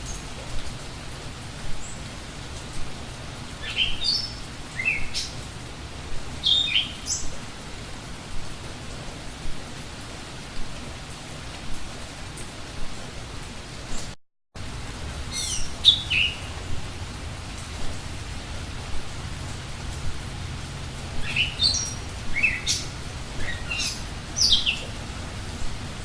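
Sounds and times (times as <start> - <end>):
songbird chirps: 0.0 - 13.0, 15.1 - 26.0
steady rain-like hiss: 0.0 - 26.0.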